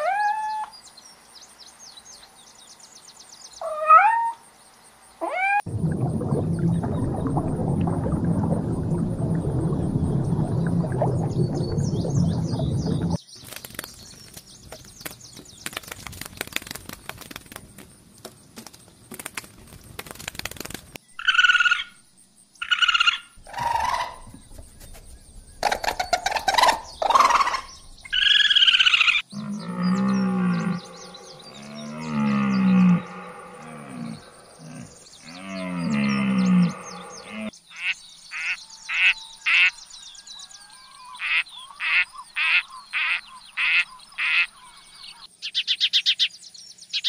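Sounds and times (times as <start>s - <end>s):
low drawn-out animal calls: 25.6s - 39.7s.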